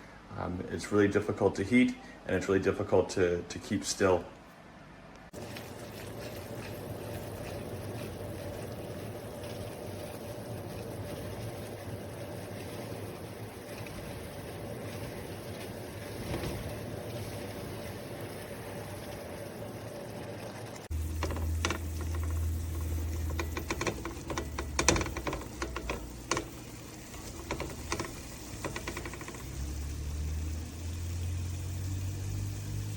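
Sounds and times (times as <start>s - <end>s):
room noise: 20.9s - 29.8s.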